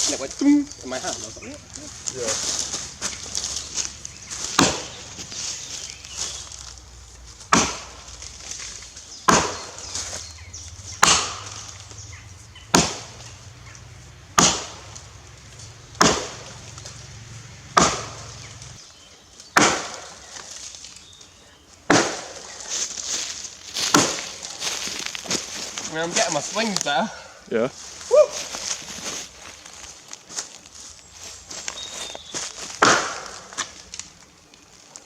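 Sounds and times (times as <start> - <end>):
axe chopping log: 4.4 - 5.1, 7.4 - 10.3, 11.0 - 12.0, 12.7 - 13.3, 14.3 - 15.2, 15.9 - 16.9, 17.7 - 18.7, 19.5 - 20.3, 21.9 - 22.6, 23.8 - 24.5, 32.7 - 33.8.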